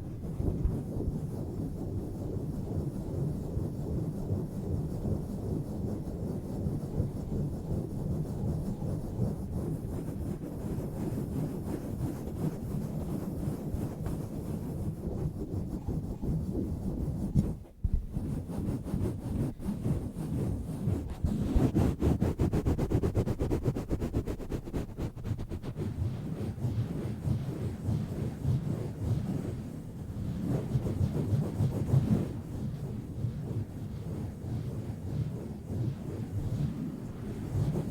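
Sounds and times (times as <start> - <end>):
microphone cover rubbing on mic: 8.4 - 29.3.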